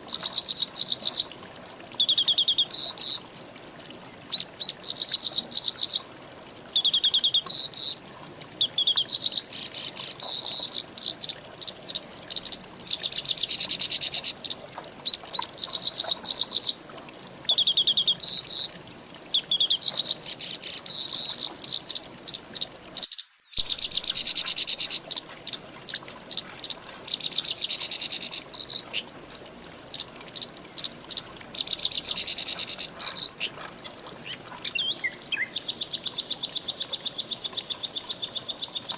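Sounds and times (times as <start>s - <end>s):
songbirds chirping and trilling: 4.3s - 38.9s.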